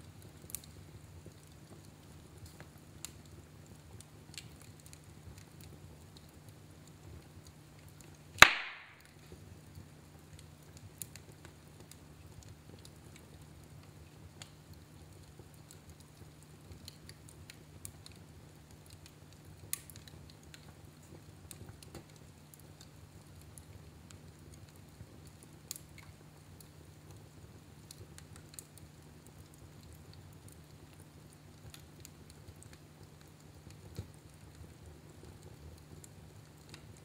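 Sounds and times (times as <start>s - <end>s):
fireplace fire rumbling: 0.0s - 37.0s
wood fire crackles: 0.0s - 37.0s
loud sharp fire pop: 8.4s - 9.1s.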